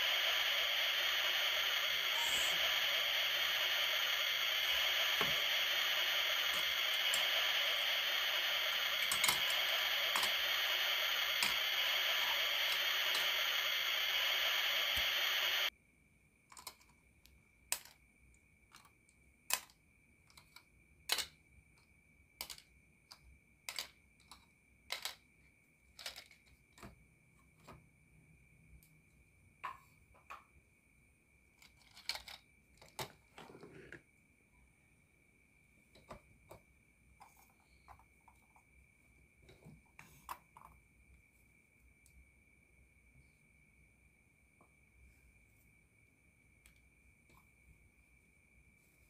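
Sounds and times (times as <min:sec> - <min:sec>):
mist effect hissing: 0:00.0 - 0:15.7.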